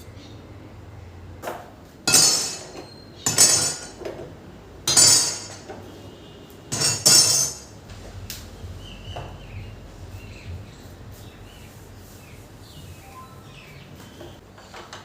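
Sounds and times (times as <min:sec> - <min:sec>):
kitchenware clinking and knocking: 0:01.5 - 0:05.9, 0:06.7 - 0:07.8.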